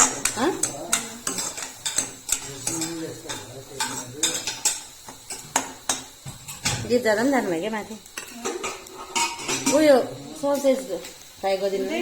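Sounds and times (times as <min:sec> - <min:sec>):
metal spoon clinking in pot: 0:00.0 - 0:06.8.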